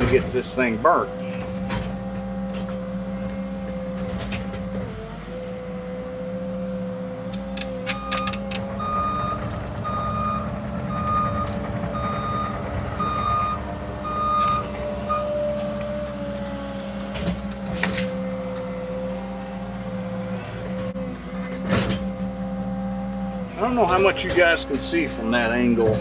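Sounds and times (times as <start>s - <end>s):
machine knocks and clanks: 0.0s - 5.1s, 7.2s - 18.3s
diesel engine running: 0.0s - 26.0s
excavator warning alarm beeping: 7.2s - 16.4s.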